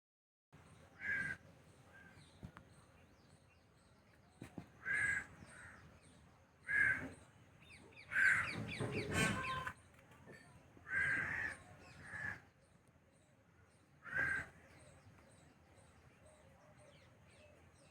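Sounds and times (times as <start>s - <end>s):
small birds chirping: 0.6s - 17.9s
harsh bird calls: 4.7s - 5.9s, 6.6s - 9.8s, 10.8s - 12.6s, 14.0s - 15.0s.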